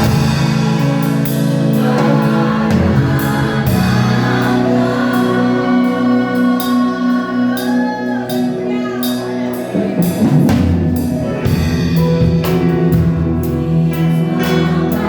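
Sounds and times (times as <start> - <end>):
singing over a band: 0.0 - 11.0
steady cymbal beat: 0.0 - 14.2.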